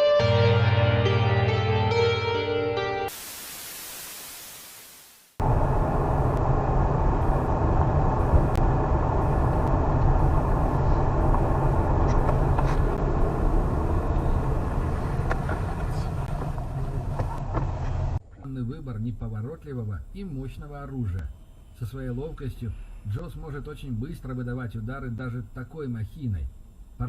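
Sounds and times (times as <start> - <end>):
car road and engine rumble: 5.4 - 27.0.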